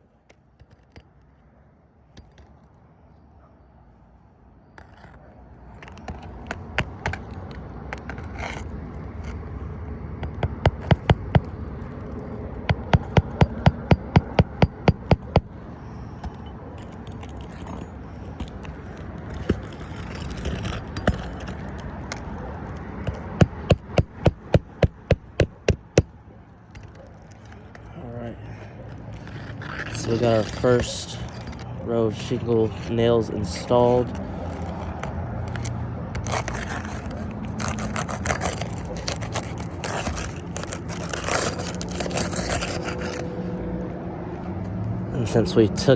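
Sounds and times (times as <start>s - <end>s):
hammering nails into shingles: 10.2s - 31.6s.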